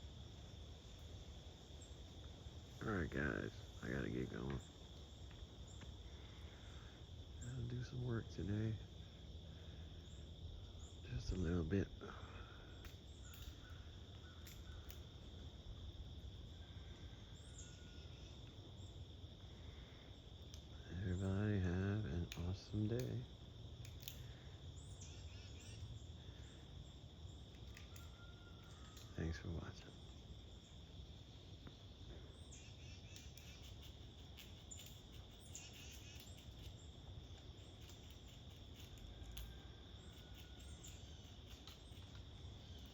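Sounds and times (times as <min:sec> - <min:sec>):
insect drone: 0:00.0 - 0:42.9
small ticks: 0:04.2 - 0:07.8, 0:12.5 - 0:42.9
faint bird calls: 0:09.5 - 0:15.4, 0:16.5 - 0:23.2, 0:24.0 - 0:30.8, 0:31.6 - 0:42.9.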